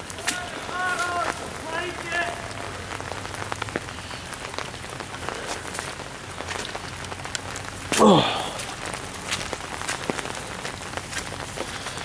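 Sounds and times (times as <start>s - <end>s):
footsteps through wet grass: 0.0s - 2.7s, 8.2s - 12.0s
light rain pattering: 0.0s - 12.0s.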